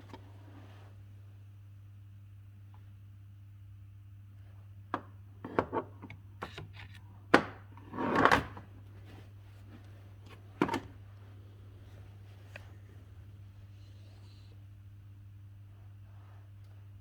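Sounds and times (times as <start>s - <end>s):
steady low hum: 8.6s - 17.0s.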